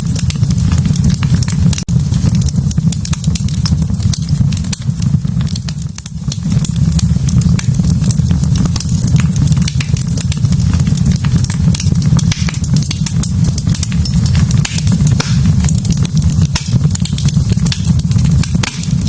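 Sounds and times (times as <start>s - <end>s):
logs crackling and popping: 0.0s - 19.0s
low rumble of fire: 0.0s - 19.0s.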